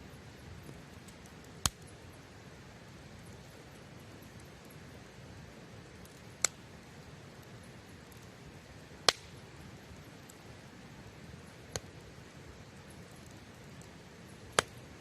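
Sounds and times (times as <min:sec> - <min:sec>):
fire hissing: 0:00.0 - 0:15.0
campfire pops: 0:00.6 - 0:02.2, 0:05.8 - 0:10.5, 0:11.1 - 0:15.0.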